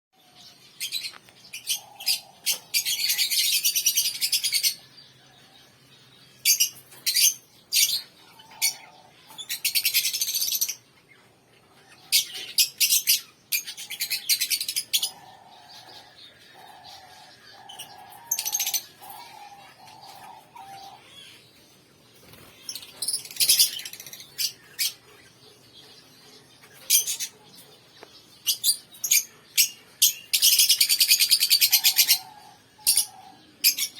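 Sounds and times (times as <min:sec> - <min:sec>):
pet birds chirping: 0:00.2 - 0:33.9
lower repeated bird calls: 0:06.3 - 0:21.6, 0:22.2 - 0:33.9.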